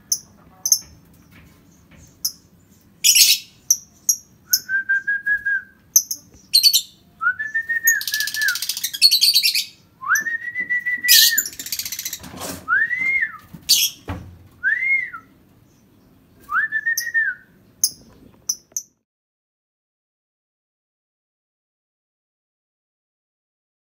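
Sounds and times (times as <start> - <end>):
bird chirping and squeaking: 1.6 - 4.3, 6.0 - 7.0, 8.5 - 9.7, 11.1 - 12.4, 13.7 - 14.1, 17.8 - 18.9
whistled notes: 4.5 - 5.8, 6.6 - 11.6.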